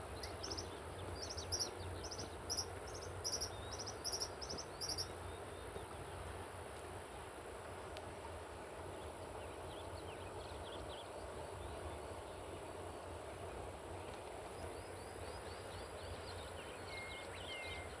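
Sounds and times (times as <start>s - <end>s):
birds chirping: 0.0s - 6.0s
background hiss: 0.0s - 18.0s.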